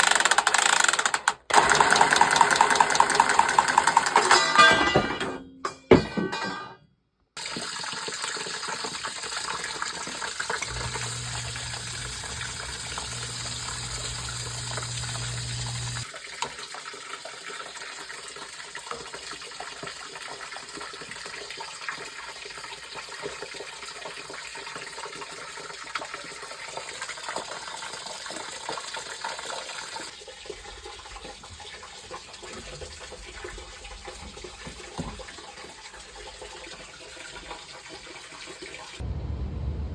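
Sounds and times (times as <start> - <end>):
water running through plumbing: 0.0 - 5.1, 7.4 - 39.0
low hum: 39.0 - 39.9.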